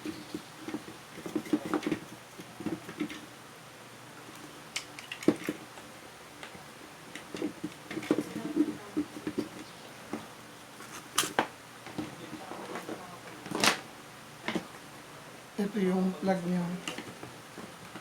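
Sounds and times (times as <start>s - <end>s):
small parts clicking and tapping: 4.4s - 5.6s.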